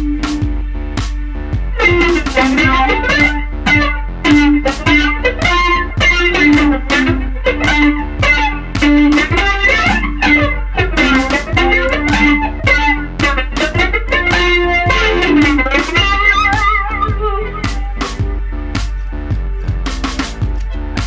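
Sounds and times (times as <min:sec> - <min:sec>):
low amp hum: 0:00.0 - 0:21.0
electric guitar picked notes with echo: 0:01.7 - 0:18.5.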